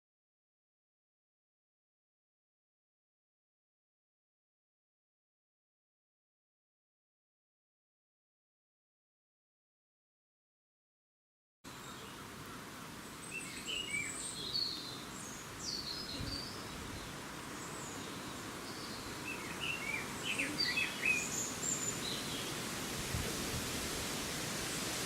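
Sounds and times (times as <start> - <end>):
outdoor background hiss: 11.7 - 25.0.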